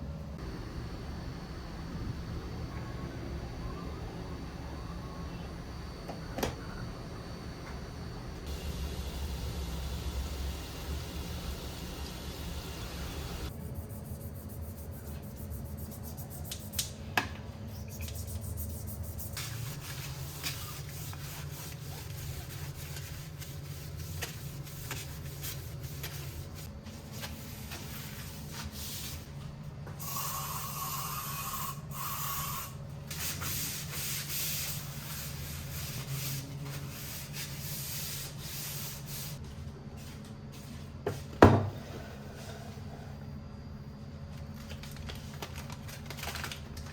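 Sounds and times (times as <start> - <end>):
steady low hum: 0.0 - 44.9
rubbing and scraping on surface: 13.5 - 16.9, 17.9 - 29.3.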